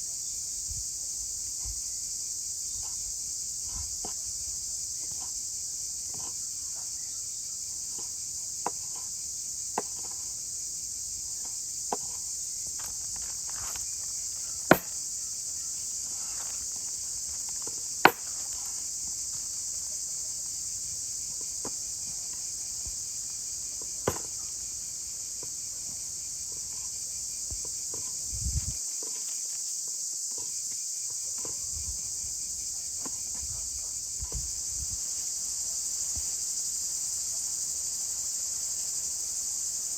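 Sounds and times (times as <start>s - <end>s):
insects chirring: 0.0s - 39.9s
sharp knocks: 14.7s - 15.0s, 18.0s - 18.5s.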